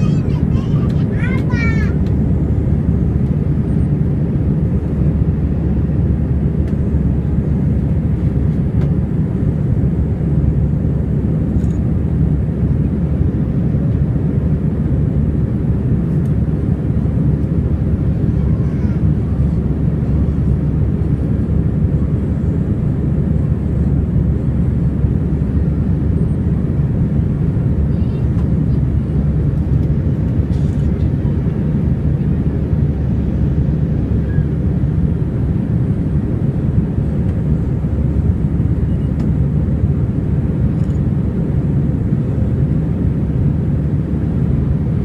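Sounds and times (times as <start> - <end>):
jet engines rumbling: 0.0 - 45.0.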